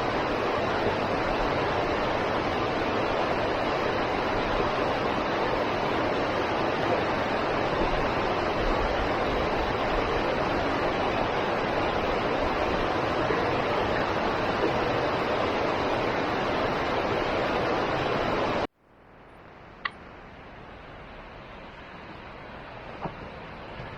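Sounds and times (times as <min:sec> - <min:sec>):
waterfall rushing: 0:00.0 - 0:18.7.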